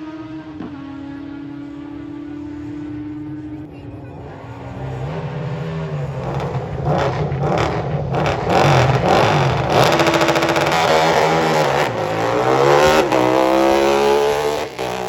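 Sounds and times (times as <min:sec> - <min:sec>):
motorcycle engine revving: 0:04.7 - 0:15.0
sharp exhaust cracks: 0:06.4 - 0:13.6.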